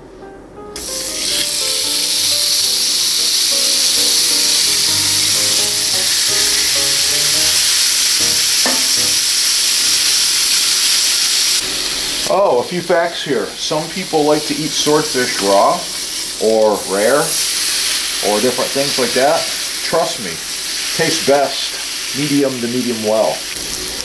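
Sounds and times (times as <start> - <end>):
light background music: 0.1 - 9.6
fish sizzling on grill pan: 0.8 - 12.6, 14.0 - 24.0.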